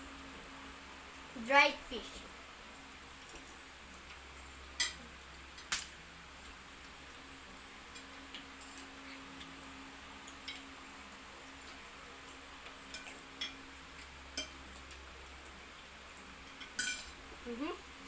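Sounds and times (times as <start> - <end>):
faint steady hum: 0.0 - 18.0
faint eating clicks: 2.2 - 16.8
utensils clinking on plates: 4.8 - 5.8, 11.6 - 15.0, 16.4 - 17.2.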